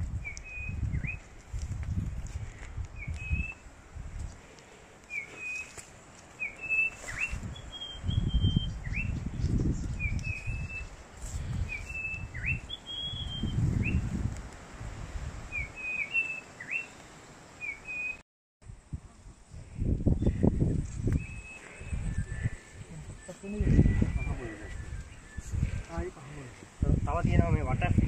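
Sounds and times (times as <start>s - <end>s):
bird chirping: 6.4s - 10.9s, 11.6s - 14.1s, 15.5s - 17.0s.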